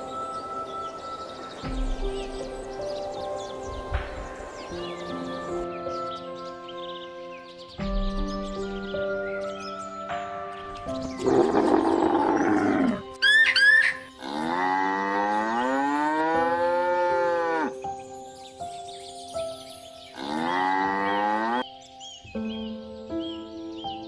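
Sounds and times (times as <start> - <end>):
light background music: 0.0 - 24.0
cattle mooing: 14.2 - 17.7, 20.2 - 21.6.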